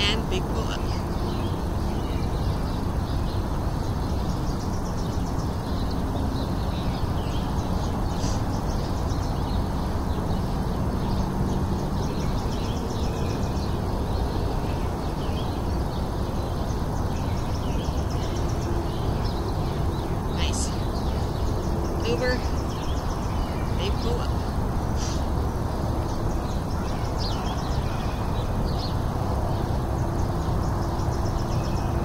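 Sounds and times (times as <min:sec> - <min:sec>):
birds chirping and trilling: 0:00.0 - 0:32.0.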